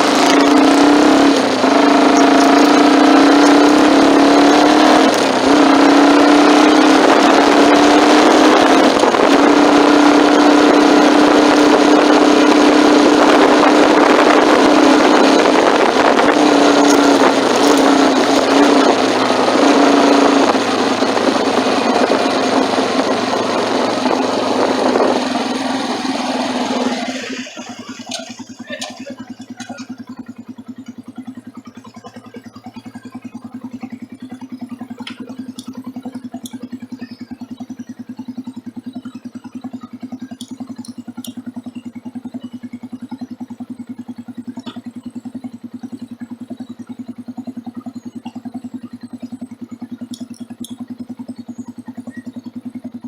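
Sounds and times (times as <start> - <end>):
wind and road noise: 0.0 - 28.9
motorcycle engine running: 0.0 - 53.0.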